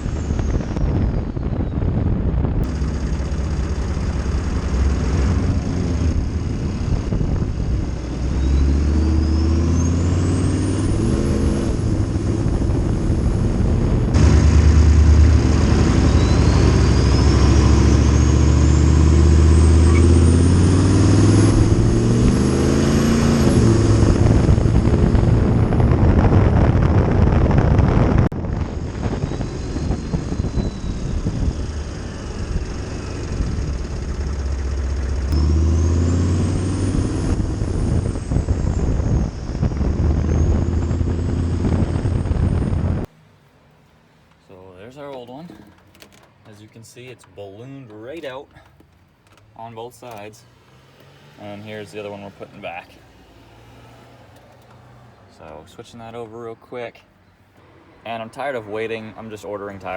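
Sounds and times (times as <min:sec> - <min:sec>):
diesel engine accelerating: 0:00.0 - 0:43.4, 0:44.4 - 0:56.6
turbo whistle: 0:15.8 - 0:18.9, 0:29.1 - 0:32.3.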